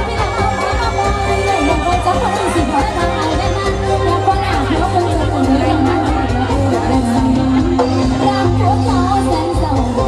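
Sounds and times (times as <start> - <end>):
live band music with steady beat: 0.0 - 10.0.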